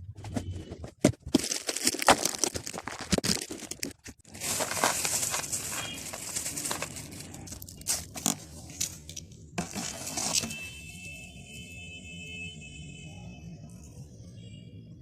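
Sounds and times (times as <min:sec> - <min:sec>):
plastic wrapping crinkling: 0:01.2 - 0:10.8.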